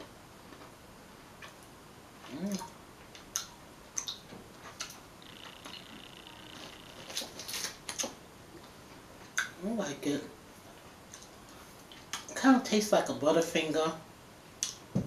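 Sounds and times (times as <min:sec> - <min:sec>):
person humming: 0:02.3 - 0:02.7
candy crunching while chewed: 0:06.5 - 0:08.2.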